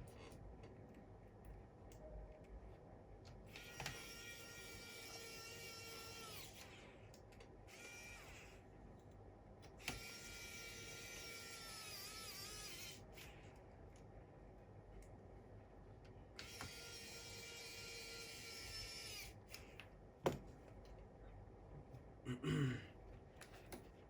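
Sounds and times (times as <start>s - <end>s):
small electric motor whining: 3.5s - 6.8s, 7.7s - 8.6s, 9.8s - 13.4s, 16.4s - 19.4s.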